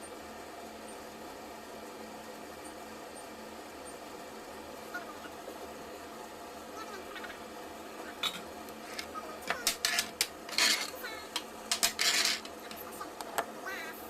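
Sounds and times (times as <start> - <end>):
utensils clinking against dishes: 8.2 - 12.8.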